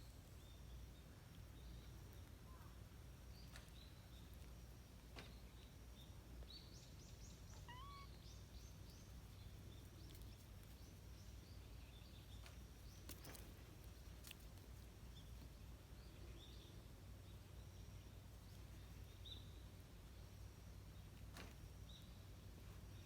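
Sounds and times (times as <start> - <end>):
bird chirping: 0.0 - 14.4, 15.0 - 21.1
low outdoor hum: 0.0 - 23.0
bird rising call: 7.6 - 8.2.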